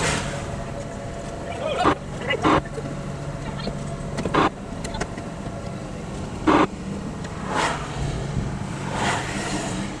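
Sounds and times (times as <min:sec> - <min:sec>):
parked vehicle humming: 0:00.0 - 0:10.0
wide whooshing bursts: 0:07.4 - 0:10.0.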